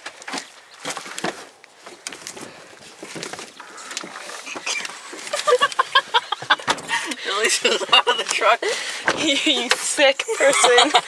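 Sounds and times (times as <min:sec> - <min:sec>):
rustling: 0:00.0 - 0:07.1.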